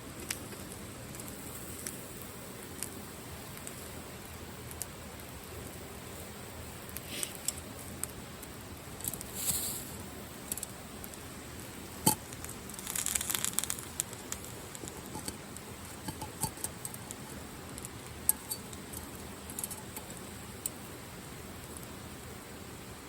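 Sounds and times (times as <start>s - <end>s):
crackling rustle: 0.0s - 22.2s
rain hiss: 0.1s - 23.0s
small clicks and taps: 12.1s - 20.8s.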